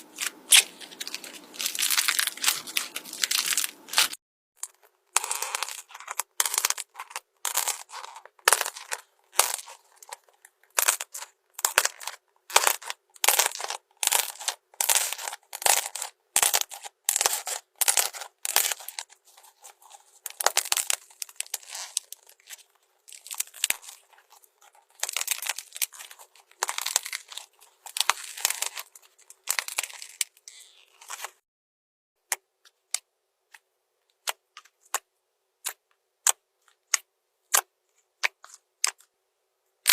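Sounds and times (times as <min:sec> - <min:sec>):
slime squishing: 0:00.0 - 0:31.4.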